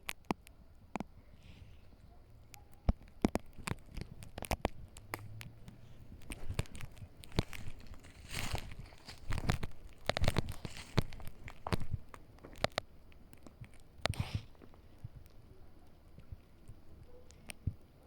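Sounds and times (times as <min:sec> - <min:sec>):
rustling: 0:00.0 - 0:17.8
footsteps crunching on forest floor: 0:03.0 - 0:12.8.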